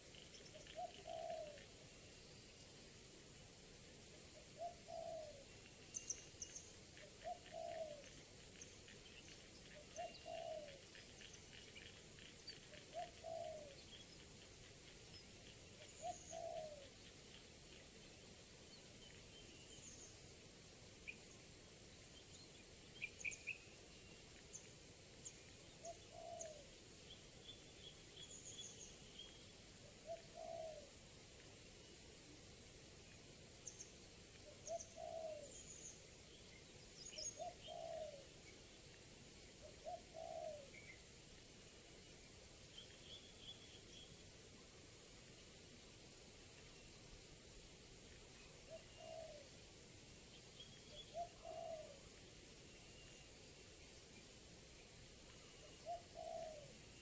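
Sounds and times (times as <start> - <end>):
small birds chirping: 0.0 - 2.8, 4.2 - 32.2, 33.0 - 44.6, 46.5 - 57.0
dove cooing: 0.6 - 1.7, 4.6 - 5.4, 7.0 - 8.1, 9.7 - 10.9, 11.8 - 13.8, 16.0 - 16.9, 25.8 - 26.7, 30.0 - 30.9, 34.6 - 35.5, 37.4 - 38.3, 39.6 - 40.7, 48.7 - 49.5, 51.1 - 52.0, 55.8 - 56.8.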